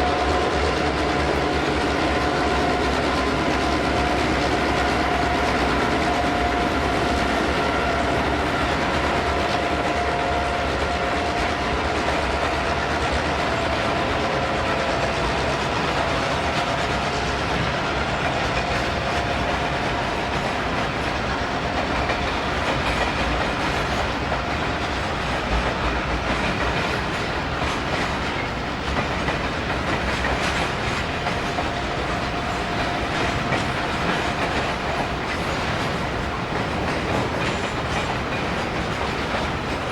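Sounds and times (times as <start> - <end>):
freight train rumbling past: 0.0 - 39.9
wheels clattering over rail joints: 1.1 - 39.9.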